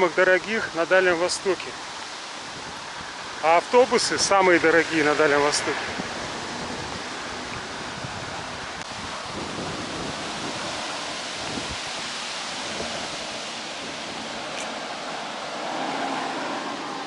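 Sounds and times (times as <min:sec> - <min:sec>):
wind blowing: 0:00.0 - 0:17.0
wind rumbling on microphone: 0:00.0 - 0:17.0.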